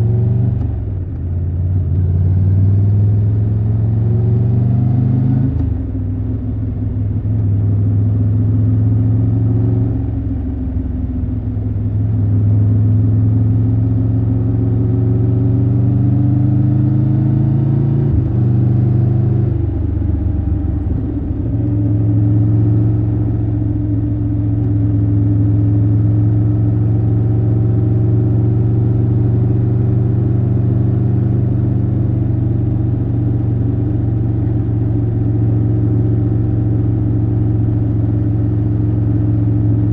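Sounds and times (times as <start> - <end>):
motorcycle engine running: 18.1 - 39.9.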